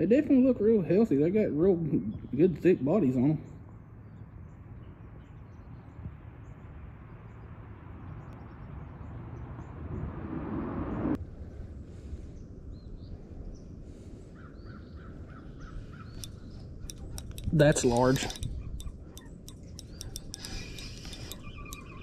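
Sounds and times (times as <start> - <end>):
steady rushing outdoor noise: 3.6 - 22.0
birds calling in short notes: 14.4 - 22.0.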